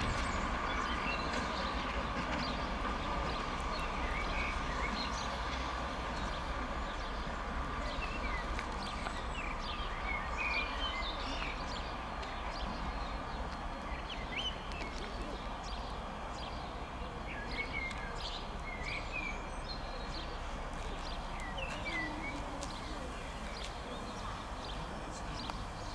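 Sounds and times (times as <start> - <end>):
train running slowly: 0.0 - 25.9.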